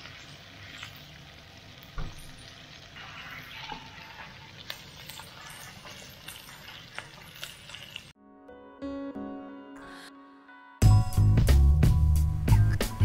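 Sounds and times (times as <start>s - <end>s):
chicken sizzling in a frying pan: 0.0s - 8.2s.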